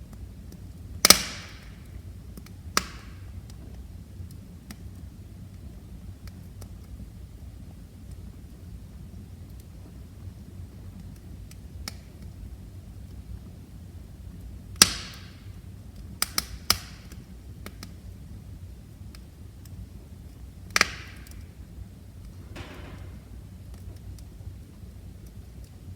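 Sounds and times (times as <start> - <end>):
fire crackling: 0.0 - 25.9
fire rumbling in fireplace: 0.0 - 25.9
sharp wood snaps: 2.8 - 3.1, 20.8 - 21.5
wood popping: 22.2 - 24.2.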